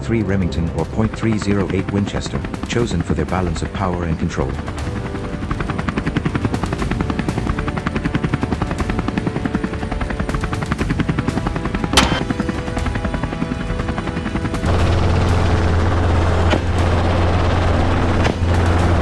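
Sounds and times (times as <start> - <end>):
helicopter rotor blades chopping: 0.1 - 19.0
rifle shot: 12.0 - 12.3
low drone: 14.6 - 19.0.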